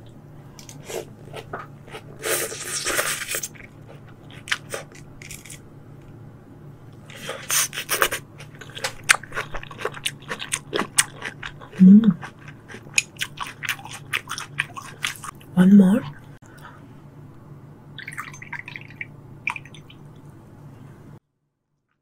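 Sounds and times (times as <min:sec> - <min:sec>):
crunchy chewing: 0:07.1 - 0:15.4.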